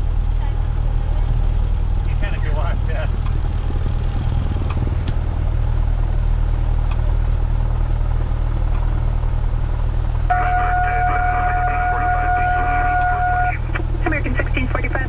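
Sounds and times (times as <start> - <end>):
light aircraft engine idling: 0.0 - 15.0
high-pitched tone: 10.3 - 15.0.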